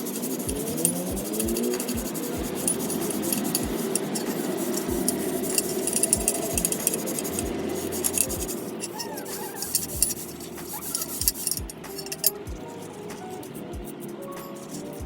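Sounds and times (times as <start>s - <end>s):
scratchy rubbing on metal: 0.0s - 15.0s
light metallic clinks: 0.5s - 13.3s.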